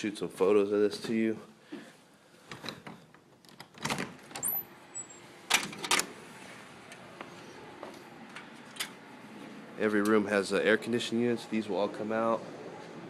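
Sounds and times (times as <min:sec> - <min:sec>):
door squeaking: 0:03.7 - 0:06.0.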